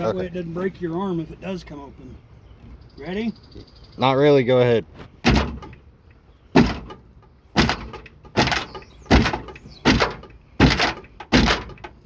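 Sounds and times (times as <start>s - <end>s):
metal door banging: 5.2s - 5.8s, 6.5s - 12.0s.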